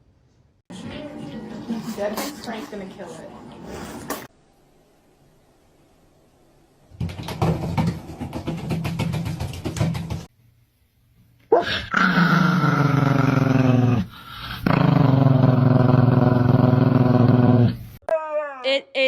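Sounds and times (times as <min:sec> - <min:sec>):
dog growling: 0:11.5 - 0:17.8.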